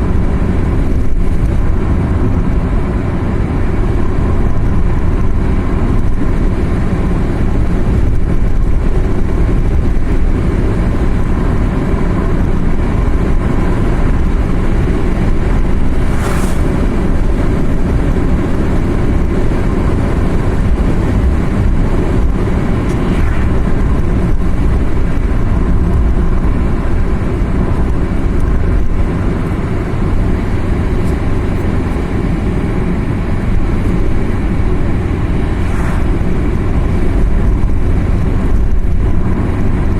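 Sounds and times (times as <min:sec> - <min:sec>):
car engine and tyres rumbling: 0:00.0 - 0:39.9
brief hiss: 0:16.1 - 0:16.8.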